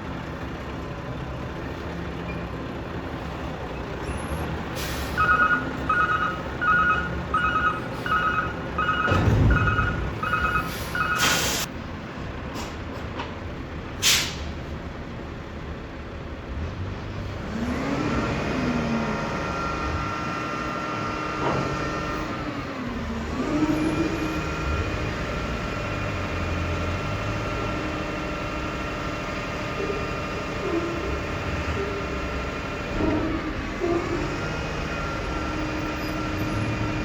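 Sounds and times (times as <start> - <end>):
reversing alarm beeping: 4.9 - 11.7
air brake hisses: 10.6 - 11.7, 14.0 - 14.5
truck engine running: 17.2 - 37.0.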